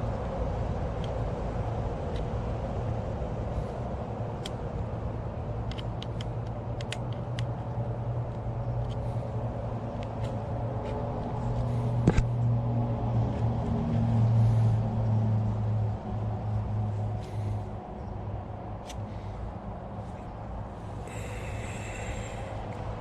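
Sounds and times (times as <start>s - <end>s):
low hum: 0.0s - 23.0s
small sharp clicks: 5.6s - 9.1s.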